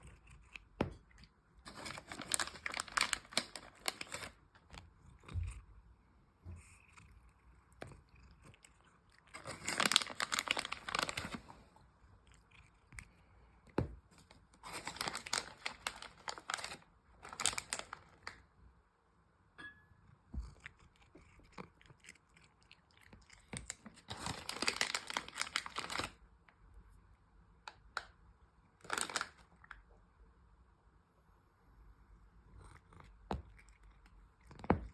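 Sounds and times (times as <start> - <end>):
cat crunching dry food: 0.0 - 5.7, 6.6 - 18.5, 20.4 - 26.2, 28.8 - 29.9, 32.6 - 34.9.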